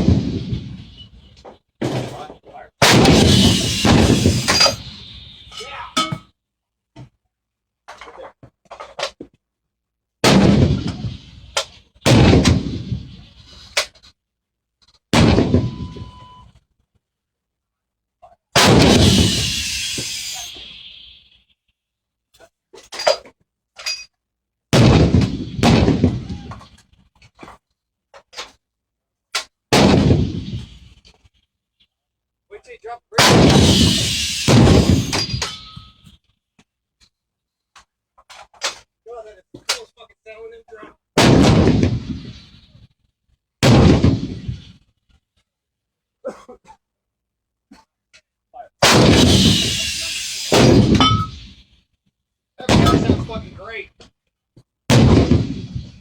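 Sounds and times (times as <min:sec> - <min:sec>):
artillery blasts with rumble: 0:00.0 - 0:05.6, 0:10.2 - 0:13.6, 0:15.1 - 0:16.2, 0:18.6 - 0:21.0, 0:24.7 - 0:26.8, 0:29.7 - 0:31.1, 0:33.2 - 0:36.0, 0:41.2 - 0:42.8, 0:43.6 - 0:44.8, 0:48.8 - 0:51.6, 0:52.7 - 0:53.6, 0:54.9 - 0:56.0.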